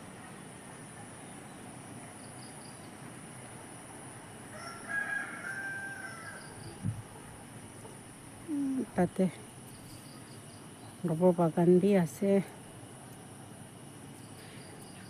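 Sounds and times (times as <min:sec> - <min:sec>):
high insect drone: 0:00.0 - 0:15.0
rooster crowing: 0:04.5 - 0:06.7.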